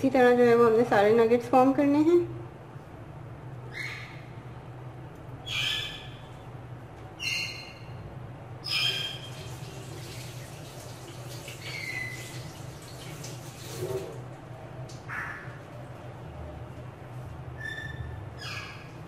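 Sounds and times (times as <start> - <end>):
steady low hum: 0.0 - 11.4, 12.1 - 19.0
bird calling: 3.7 - 4.4, 5.4 - 6.4, 7.2 - 8.0, 8.6 - 9.5, 15.1 - 15.6.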